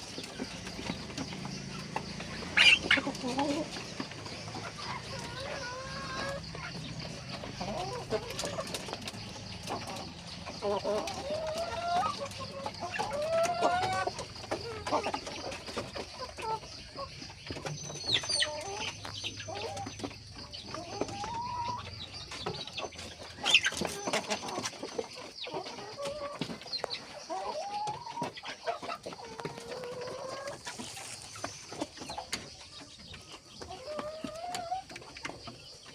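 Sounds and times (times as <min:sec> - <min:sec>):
chickens clucking: 0:00.0 - 0:35.9.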